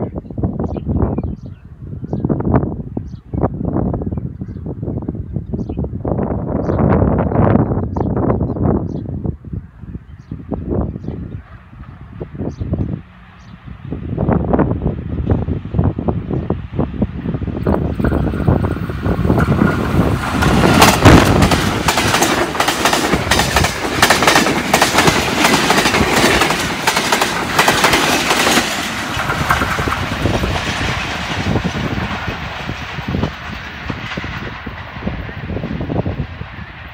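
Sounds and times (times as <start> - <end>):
locomotive engine noise: 10.4 - 36.9
train wheels clattering: 17.7 - 35.0.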